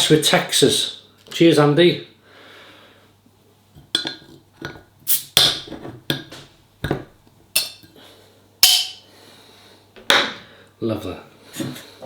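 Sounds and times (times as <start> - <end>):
glass and bottles clinking: 4.0 - 4.8, 7.6 - 7.9, 8.6 - 9.0.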